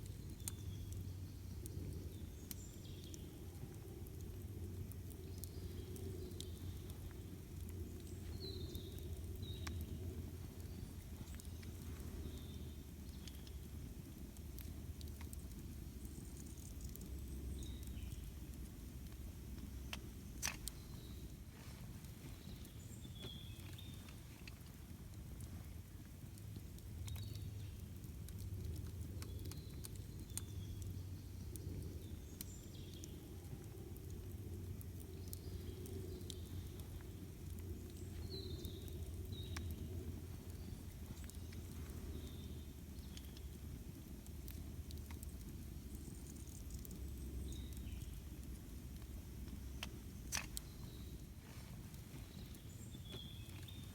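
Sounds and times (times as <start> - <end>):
campfire crackling and popping: 0.0 - 53.9
low steady rumble: 0.0 - 53.9
bird chirping: 52.1 - 53.9.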